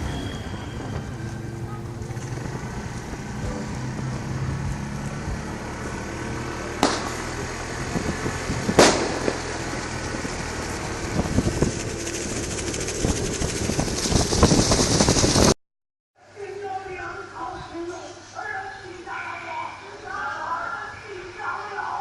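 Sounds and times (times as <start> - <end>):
motorcycle engine running: 1.1 - 15.6
wind on microphone: 7.4 - 15.6.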